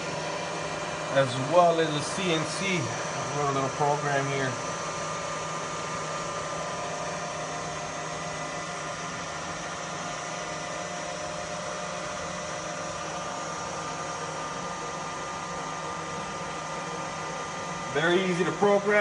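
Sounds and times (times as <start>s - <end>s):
milling machine whirring hum: 0.0s - 19.0s.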